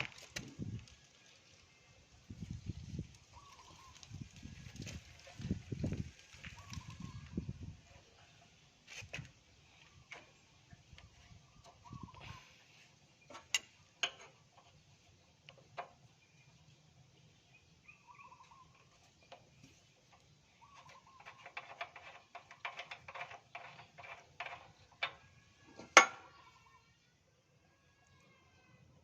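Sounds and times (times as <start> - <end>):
metal parts and tools clicking: 13.3 - 14.7, 20.8 - 26.3
tools scraping metal: 20.7 - 26.4.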